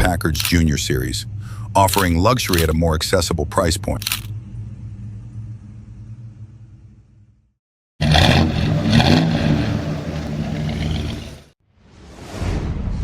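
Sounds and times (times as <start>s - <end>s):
low rumble: 4.0s - 7.5s
car engine revving: 8.0s - 11.6s.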